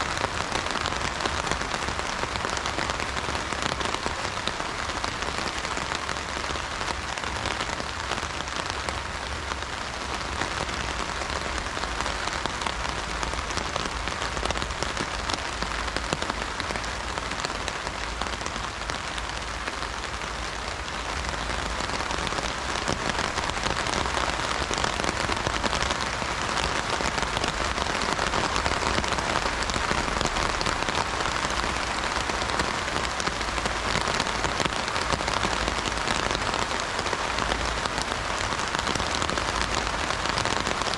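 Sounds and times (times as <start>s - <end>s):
rain on an umbrella: 0.0s - 40.9s.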